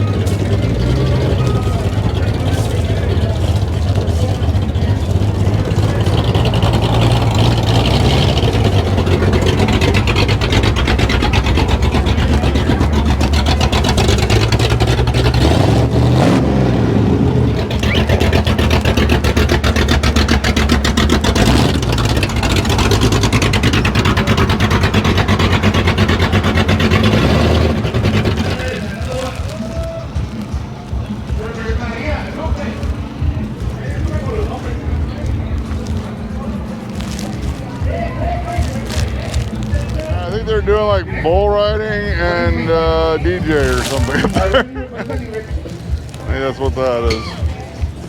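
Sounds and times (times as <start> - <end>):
vehicle engine running: 0.0 - 48.0.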